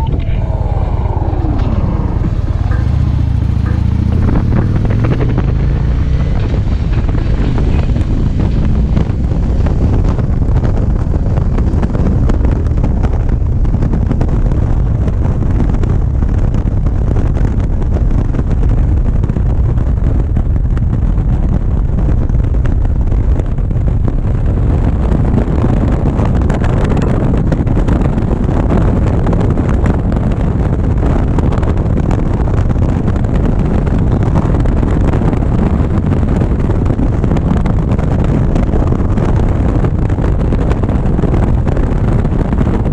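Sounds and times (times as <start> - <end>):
motorcycle engine running: 0.0 - 17.8
wind rushing over microphone: 0.0 - 42.9.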